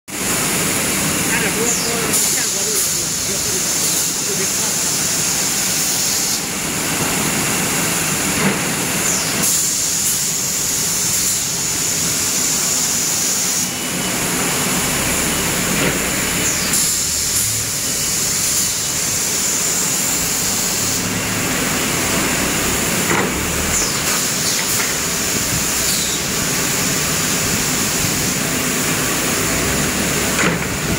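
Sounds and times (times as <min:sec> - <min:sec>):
sanding machine rumbling: 0:14.1 - 0:30.9.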